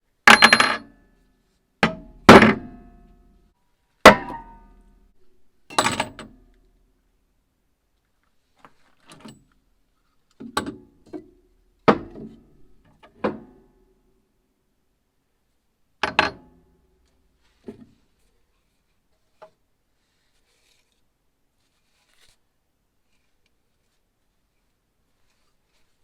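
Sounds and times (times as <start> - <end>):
sharp metal knocks and clinks: 0.3 - 0.9, 5.7 - 6.4.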